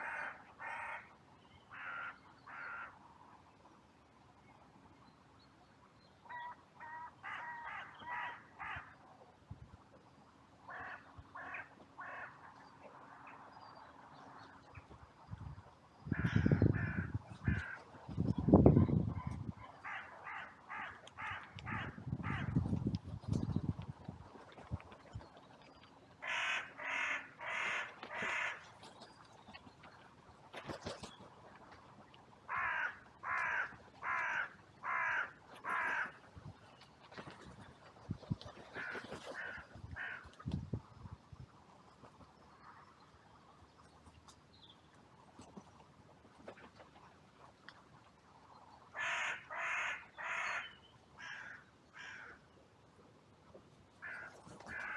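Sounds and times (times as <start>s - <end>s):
crows cawing: 1.8s - 2.9s, 6.8s - 8.8s, 26.2s - 28.6s, 32.5s - 36.2s, 49.0s - 50.6s, 51.2s - 52.4s, 54.0s - 54.9s
low rumble on microphone: 15.2s - 19.7s.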